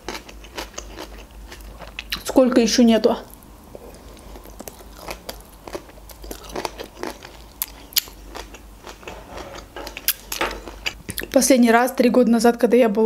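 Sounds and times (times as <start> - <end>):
chewing with lip smacks: 0.0 - 2.2, 3.3 - 9.1.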